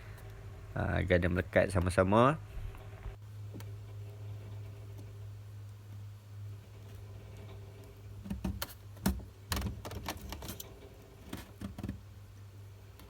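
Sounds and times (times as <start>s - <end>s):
steady low hum: 0.0s - 13.0s
wires clicking and rustling: 3.5s - 13.0s.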